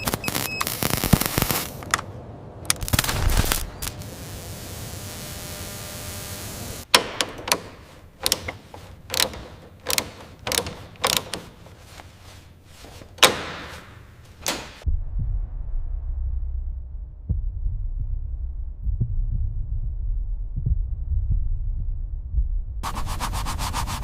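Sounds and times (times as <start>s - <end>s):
steady hiss: 0.0s - 2.0s, 2.7s - 6.9s
sharp mechanical clicks: 6.8s - 11.7s.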